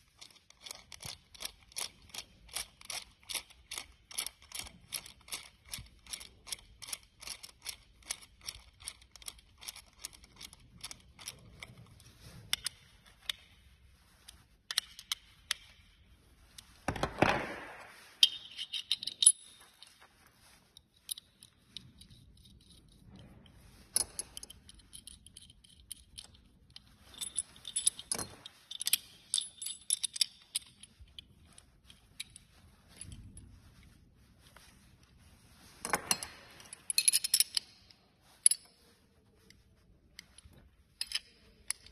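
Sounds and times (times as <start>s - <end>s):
metal hardware clinking: 14.7s - 16.0s, 16.9s - 20.0s, 23.9s - 31.2s, 35.8s - 38.8s, 40.3s - 41.9s.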